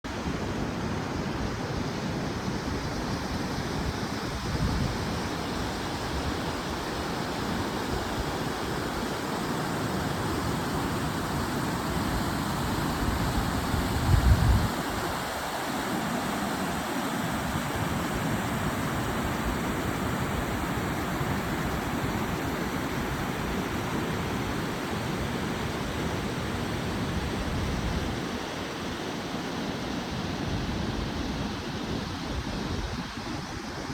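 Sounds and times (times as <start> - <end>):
rushing outdoor noise: 0.1 - 33.9
wind buffeting microphone: 13.2 - 15.4.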